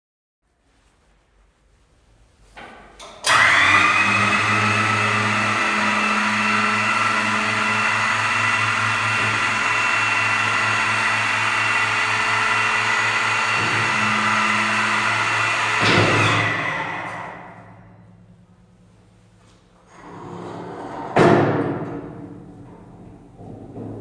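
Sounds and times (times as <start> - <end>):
dump truck engine drone: 3.3 - 18.7.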